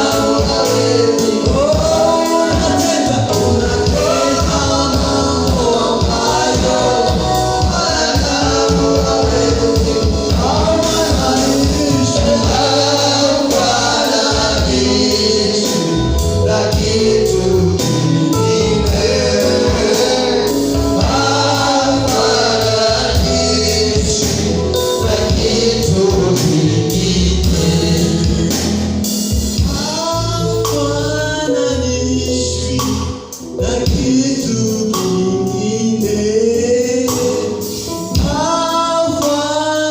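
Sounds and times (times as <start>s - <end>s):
choir singing: 0.0s - 28.6s
band with bass and percussion: 0.0s - 39.9s
lead singer: 0.0s - 39.9s.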